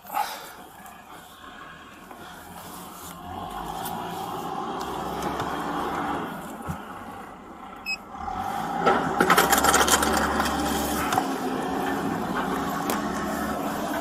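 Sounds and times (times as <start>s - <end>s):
vehicle engine running: 0.2s - 14.0s
loud clattering and scraping: 8.4s - 14.0s.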